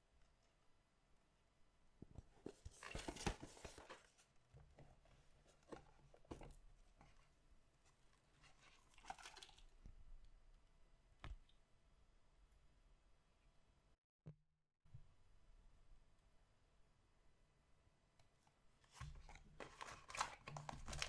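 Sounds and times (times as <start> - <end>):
packaging tearing and crinkling: 19.6 - 21.0.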